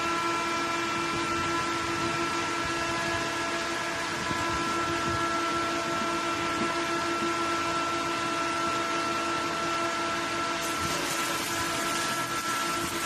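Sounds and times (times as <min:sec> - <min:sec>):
steady hum: 0:00.0 - 0:13.0
electric arc welding hiss: 0:10.6 - 0:13.0.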